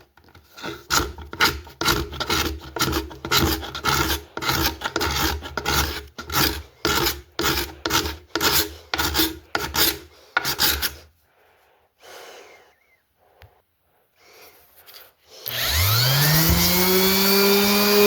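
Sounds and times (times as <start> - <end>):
paint scraper scraping glue: 0.0 - 11.1.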